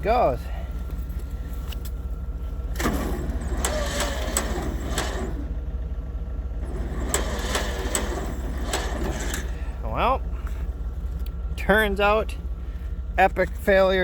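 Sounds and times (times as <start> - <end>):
engine running at low speed: 0.0 - 14.0
sharp clicks and knocks: 6.6 - 9.6.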